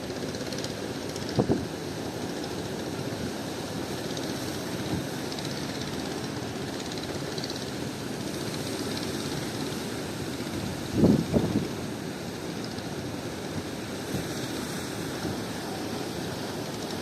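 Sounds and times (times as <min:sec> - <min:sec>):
strong wind on microphone: 0:10.5 - 0:11.9.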